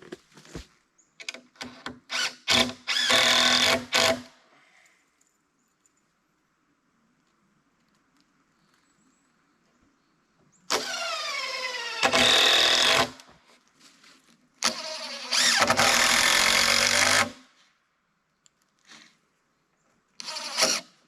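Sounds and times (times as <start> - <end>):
power drill running: 2.1 - 4.3, 10.7 - 13.2, 14.6 - 17.4, 20.2 - 20.9.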